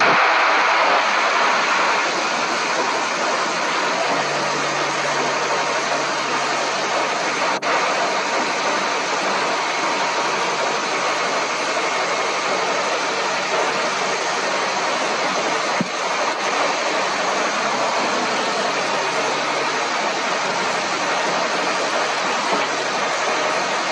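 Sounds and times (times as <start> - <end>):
combine harvester running: 0.0 - 23.9.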